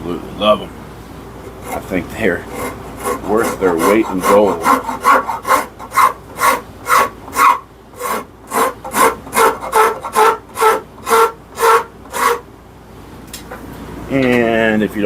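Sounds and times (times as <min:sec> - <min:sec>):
squealing handle vibration: 0:01.4 - 0:12.4
wood rasp strokes: 0:01.4 - 0:12.4.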